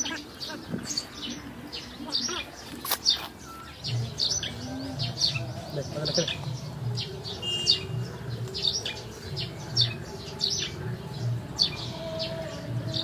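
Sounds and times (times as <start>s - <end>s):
small birds chirping: 0.0s - 13.0s
low rhythmic pulsing: 3.6s - 13.0s.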